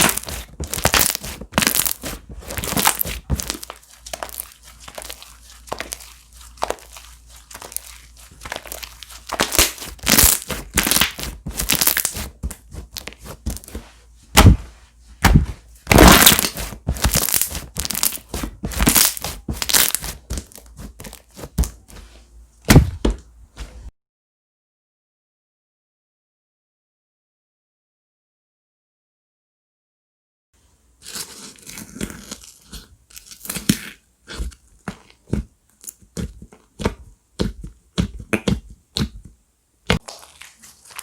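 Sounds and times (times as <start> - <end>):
slime squelching and popping: 0.0 - 13.8, 15.2 - 21.8, 39.9 - 41.0.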